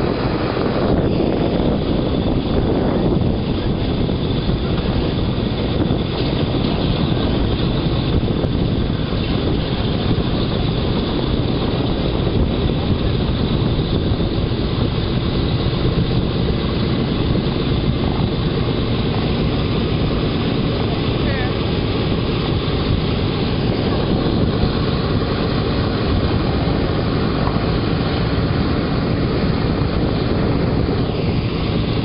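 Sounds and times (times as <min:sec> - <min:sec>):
propeller aircraft engines rumbling: 0:00.0 - 0:32.0.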